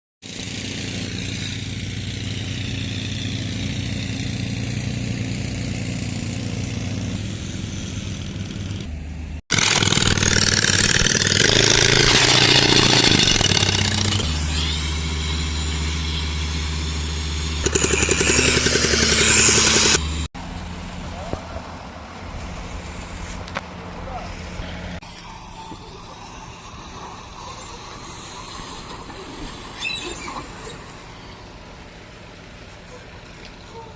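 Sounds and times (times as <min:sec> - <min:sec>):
motor engines running: 0:00.2 - 0:33.9
rapid pulsing rattle: 0:09.5 - 0:20.0
strong hiss: 0:25.0 - 0:29.9.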